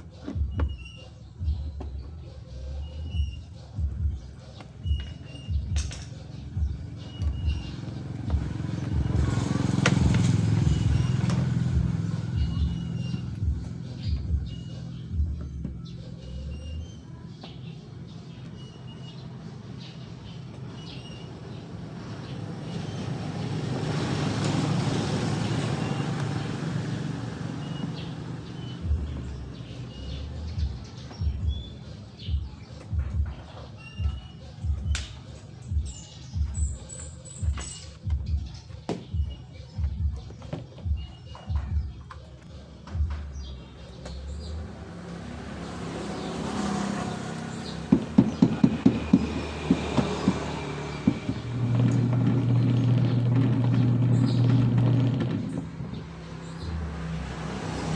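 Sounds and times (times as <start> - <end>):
small birds chirping: 0.0 - 57.9
motor humming: 46.4 - 56.0
low rumble: 51.0 - 56.2.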